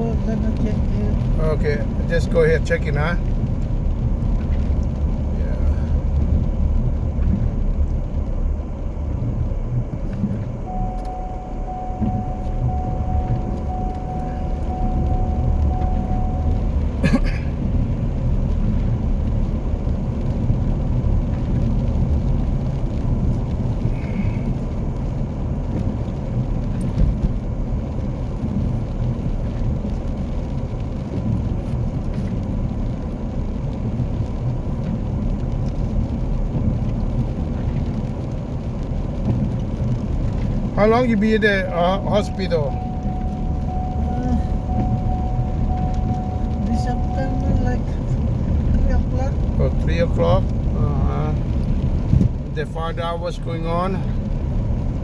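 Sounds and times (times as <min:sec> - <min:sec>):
car rumble from inside: 0:00.0 - 0:55.0
single-pitch beeps: 0:10.6 - 0:17.0, 0:41.6 - 0:48.2.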